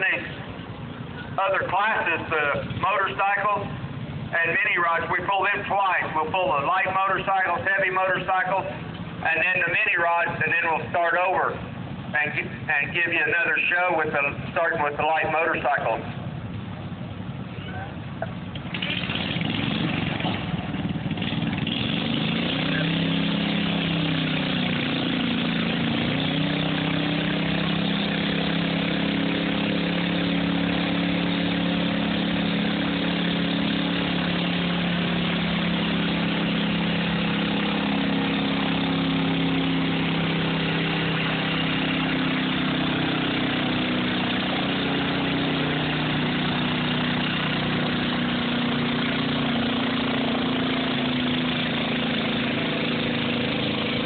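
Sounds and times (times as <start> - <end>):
garden tractor engine running: 26.9 - 54.0.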